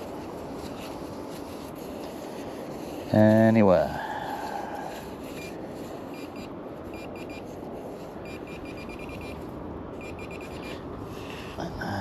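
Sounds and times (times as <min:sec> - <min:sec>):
metal detector beeping: 0:05.3 - 0:07.5, 0:08.2 - 0:09.4, 0:10.0 - 0:10.8.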